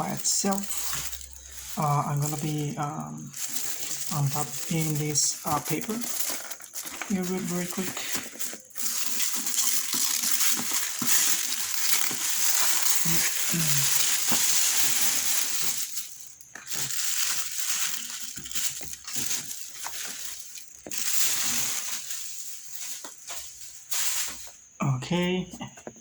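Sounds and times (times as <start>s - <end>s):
paper tearing and crumpling: 0.0s - 24.6s.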